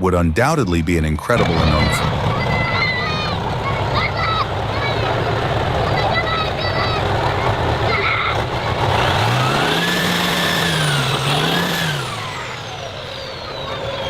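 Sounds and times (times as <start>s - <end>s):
vehicle engine revving: 1.4s - 14.0s
high whine sliding down: 8.8s - 14.0s.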